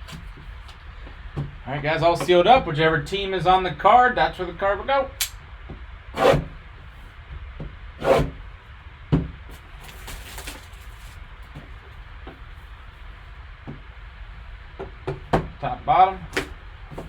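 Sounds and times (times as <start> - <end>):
cardboard scraping swishes: 8.0 - 8.3, 9.5 - 11.2
faint packaging rustling: 9.5 - 12.0.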